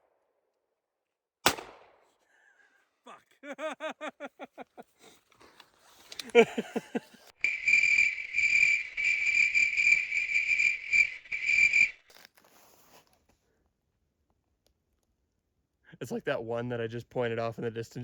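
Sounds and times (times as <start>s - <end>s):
sharp crack: 1.4s - 2.1s
insect trilling: 7.4s - 12.1s.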